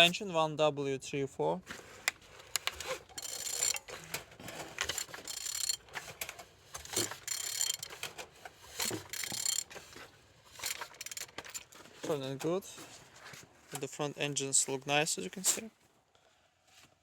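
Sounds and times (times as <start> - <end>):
ratchet wrench clicking: 2.6 - 3.9, 4.8 - 5.8, 6.8 - 9.8, 10.5 - 11.6.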